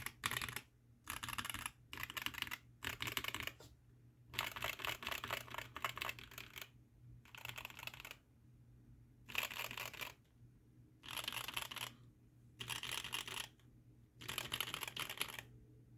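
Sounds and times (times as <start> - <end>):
mechanical keyboard typing: 0.0 - 3.6, 4.3 - 8.2, 9.3 - 10.2, 11.0 - 12.0, 12.6 - 13.6, 14.2 - 15.5.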